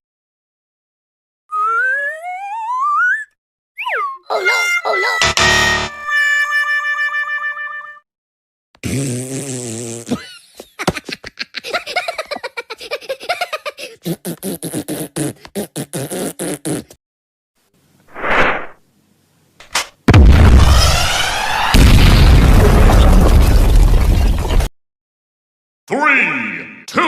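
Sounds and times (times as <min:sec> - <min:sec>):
buzzing fart-like noise: 0:08.8 - 0:10.2
short swoosh: 0:18.1 - 0:18.8
loud cartoon blast: 0:20.1 - 0:23.6.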